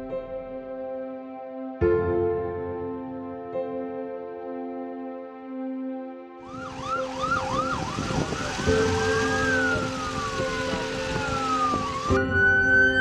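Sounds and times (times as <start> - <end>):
soft piano music: 0.0 - 13.0
emergency vehicle siren: 6.4 - 13.0
background noise rush: 6.5 - 12.2.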